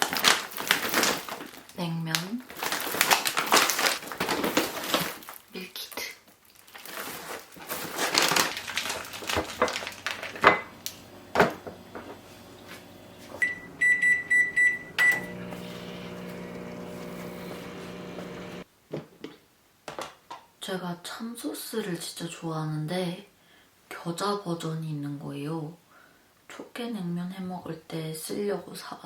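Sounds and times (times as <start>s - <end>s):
packaging rustling: 0.0s - 1.8s, 2.4s - 5.5s, 6.4s - 13.4s
appliance humming: 7.6s - 18.7s
cooking appliance beeping: 8.8s - 18.6s.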